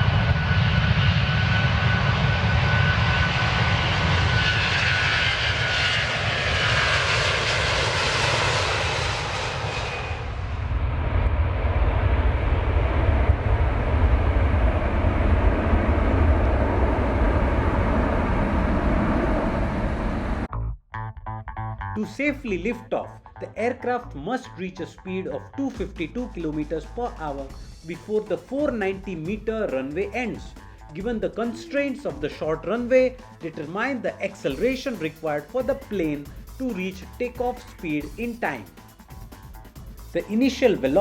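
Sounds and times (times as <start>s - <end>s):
jet engine high whine: 0.0s - 20.5s, 29.7s - 41.0s
jet engines low rumble: 0.0s - 20.5s, 26.0s - 41.0s.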